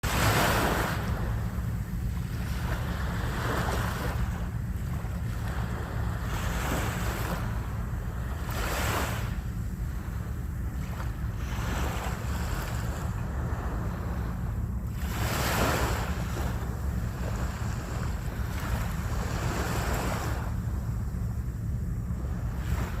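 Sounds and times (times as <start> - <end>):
ocean waves breaking: 0.0 - 23.0.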